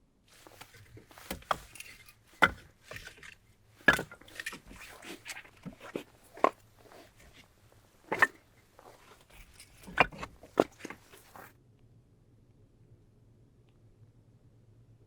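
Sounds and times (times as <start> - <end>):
soft rustling and tapping: 0.3 - 11.5
objects knocking and clattering: 0.4 - 11.5.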